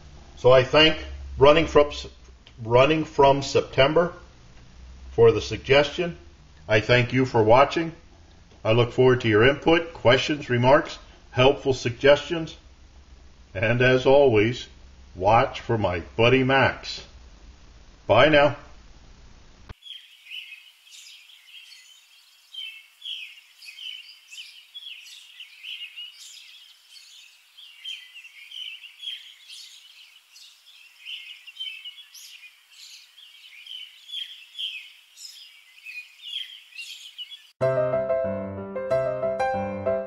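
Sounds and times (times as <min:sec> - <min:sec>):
small birds chirping: 0:19.7 - 0:37.6.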